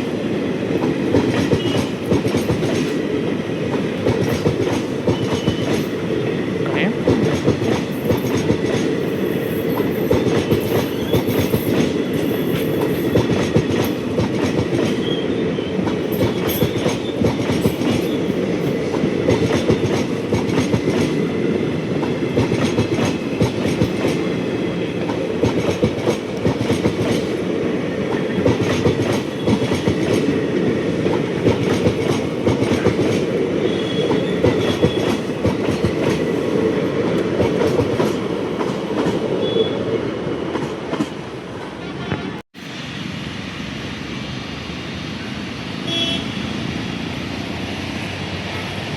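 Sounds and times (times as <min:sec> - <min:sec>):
train wheels clattering over rail joints: 0:00.8 - 0:03.0, 0:03.7 - 0:06.0, 0:07.0 - 0:15.1, 0:15.9 - 0:21.2, 0:22.0 - 0:27.5, 0:28.1 - 0:39.3.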